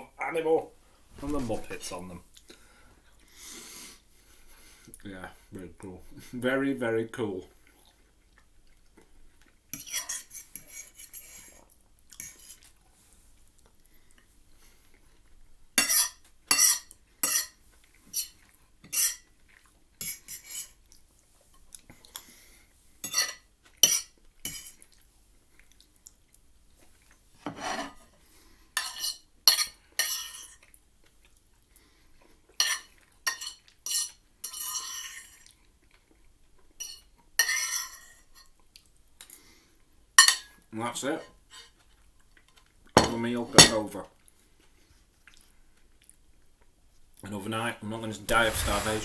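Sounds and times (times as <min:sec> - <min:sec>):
cutlery scraping on a plate: 0:09.8 - 0:11.6, 0:12.2 - 0:12.6, 0:15.8 - 0:17.6, 0:20.0 - 0:20.8, 0:23.0 - 0:24.8, 0:27.4 - 0:28.1, 0:28.8 - 0:30.6, 0:32.6 - 0:35.4, 0:36.8 - 0:38.5.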